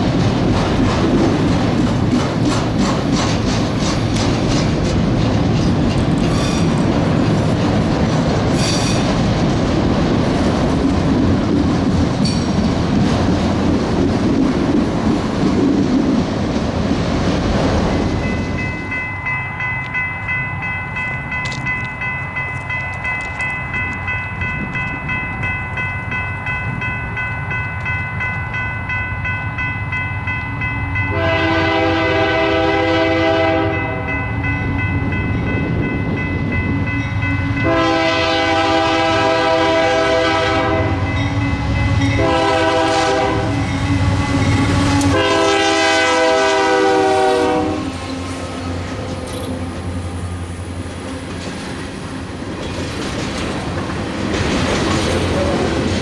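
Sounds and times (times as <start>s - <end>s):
train clanks: 0.0s - 56.0s
train passing: 0.0s - 56.0s
steady ringing tone: 18.2s - 31.2s
locomotive air horn: 31.1s - 34.0s, 37.6s - 48.0s.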